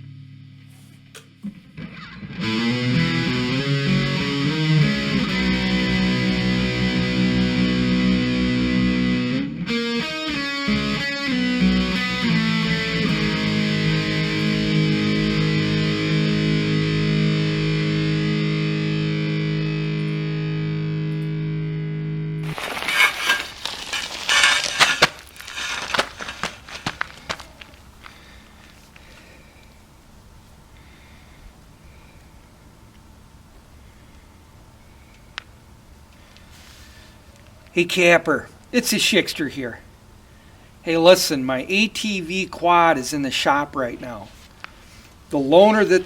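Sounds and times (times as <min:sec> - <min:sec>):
distorted electric guitar chords: 0:01.3 - 0:22.8.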